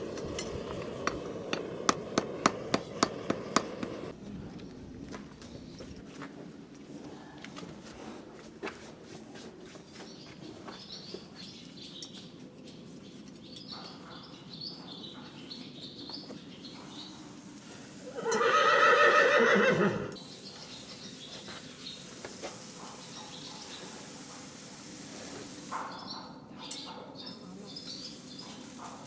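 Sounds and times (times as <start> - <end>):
small birds chirping: 10.0 - 18.6, 20.2 - 29.0
horse neighing: 18.0 - 20.2.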